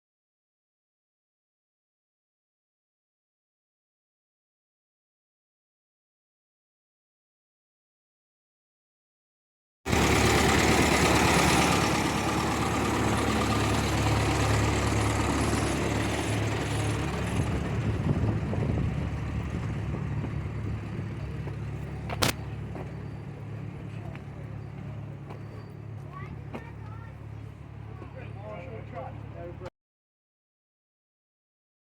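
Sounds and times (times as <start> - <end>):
engine running: 9.9 - 29.7
sharp click: 22.1 - 22.4.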